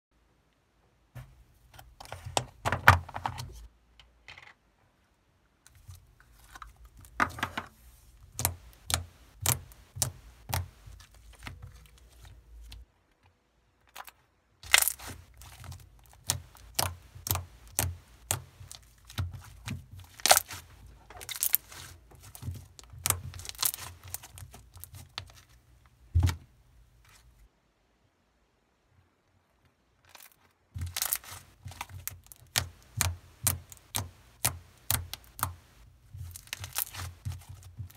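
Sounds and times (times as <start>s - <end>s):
crinkling and tearing: 5.7s - 12.9s, 13.8s - 25.6s, 30.0s - 37.9s.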